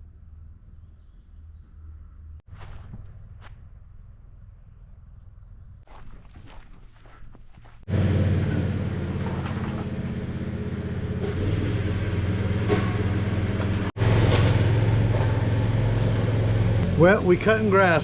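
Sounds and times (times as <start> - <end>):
lawn mower engine running: 7.9 - 18.0.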